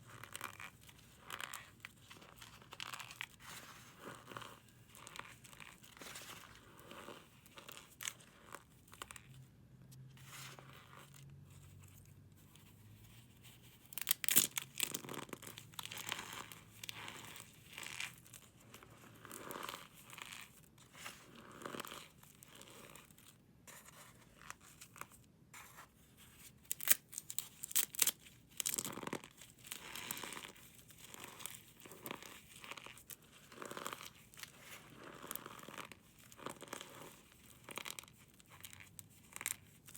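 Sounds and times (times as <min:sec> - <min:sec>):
brittle material crunching by hand: 0:13.9 - 0:18.2, 0:26.6 - 0:35.9.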